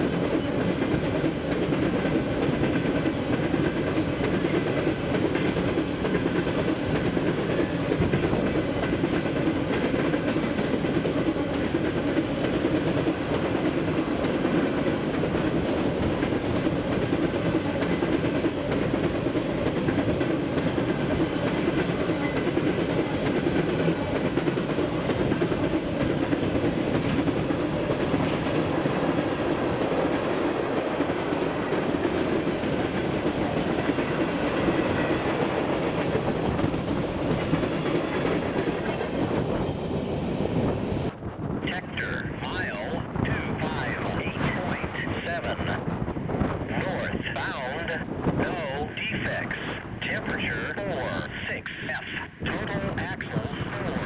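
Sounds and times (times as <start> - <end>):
wheels clickety-clack over track: 0.0 - 41.2
train wheels rumbling on rail: 0.0 - 54.0.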